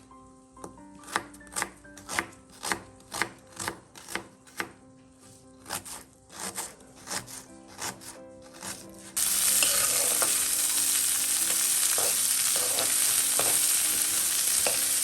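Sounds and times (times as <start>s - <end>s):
soft background music: 0.0s - 15.0s
knife chopping on cutting board: 1.0s - 4.8s, 5.6s - 10.3s, 11.9s - 15.0s.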